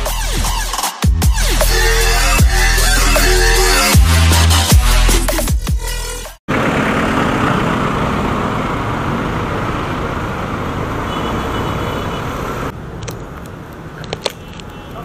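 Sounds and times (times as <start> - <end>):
motorcycle engine: 6.5 - 12.7.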